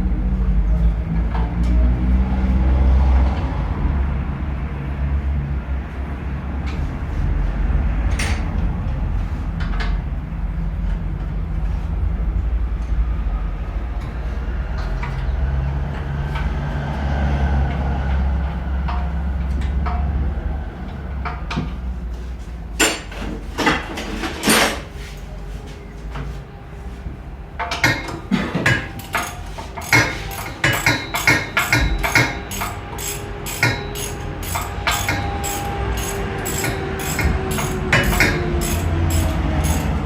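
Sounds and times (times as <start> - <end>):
metallic tapping and clinking: 27.7 - 40.0
sharp metal clanks: 27.7 - 40.0.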